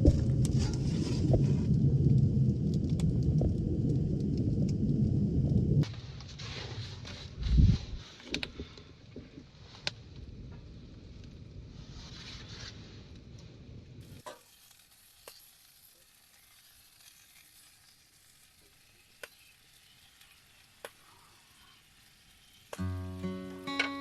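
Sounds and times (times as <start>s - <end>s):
steak sizzling in a pan: 14.0s - 24.0s
sharp pops: 20.8s - 21.1s.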